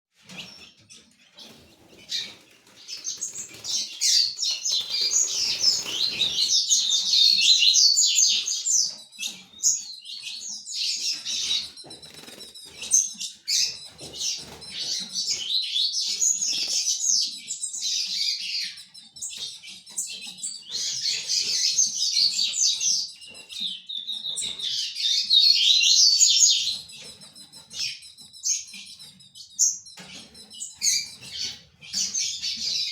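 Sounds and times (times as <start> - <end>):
bird warbling song: 0.2 - 32.9.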